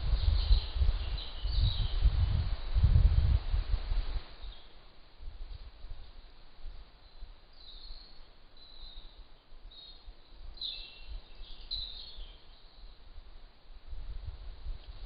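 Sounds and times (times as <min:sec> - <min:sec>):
small bird chirping: 0:07.0 - 0:13.0.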